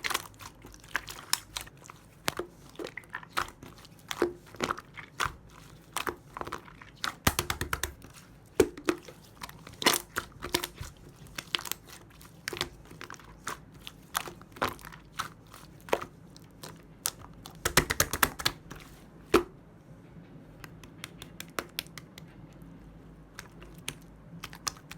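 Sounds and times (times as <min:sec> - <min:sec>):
slime crackling and popping: 0:00.0 - 0:18.6.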